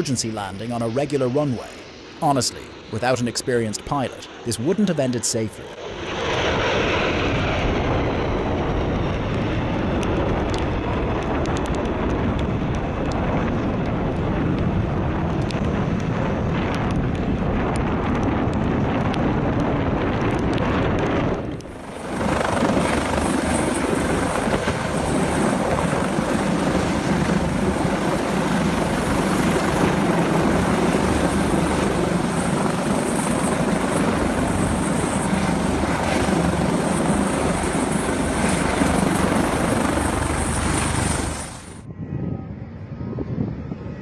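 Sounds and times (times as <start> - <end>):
loud aircraft noise: 0.0 - 44.0.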